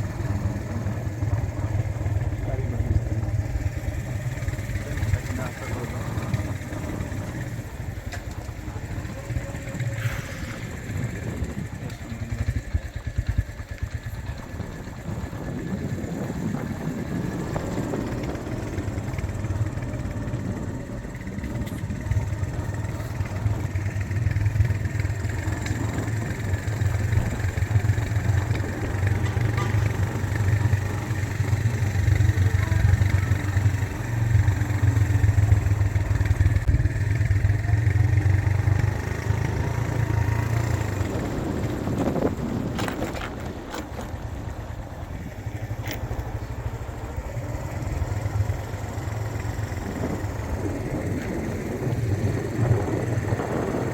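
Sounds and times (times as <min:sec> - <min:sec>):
road and wind noise: 0:00.0 - 0:53.9
vehicle engine running: 0:00.0 - 0:53.9.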